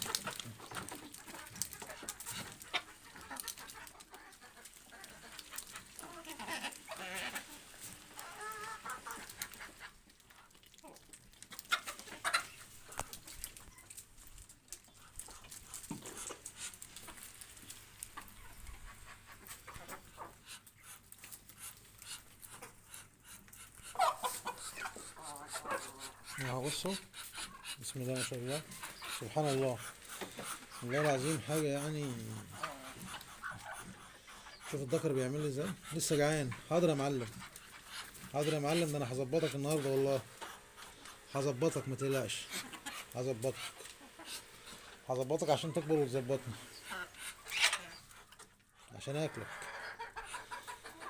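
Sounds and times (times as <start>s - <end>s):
fowl calling: 21.6s - 48.3s.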